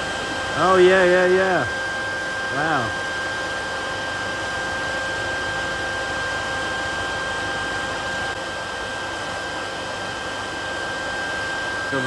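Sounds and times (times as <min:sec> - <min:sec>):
constant high whine: 0:00.0 - 0:12.0
small motor whirring drone: 0:00.0 - 0:12.0.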